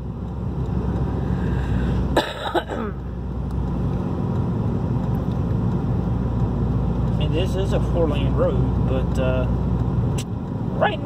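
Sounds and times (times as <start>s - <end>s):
car cabin road and engine noise: 0.0s - 11.0s
person coughing: 2.2s - 3.0s.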